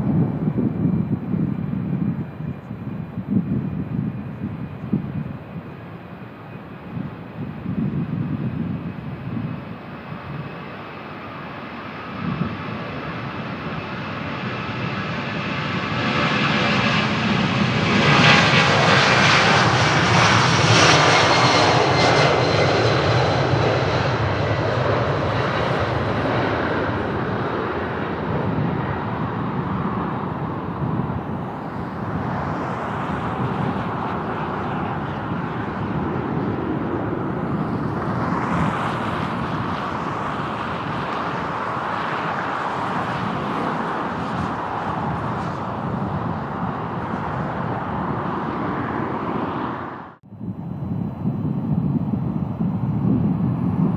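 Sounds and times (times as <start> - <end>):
high engine whine: 0.0 - 53.9
jet airliner engine rumble: 0.0 - 53.9.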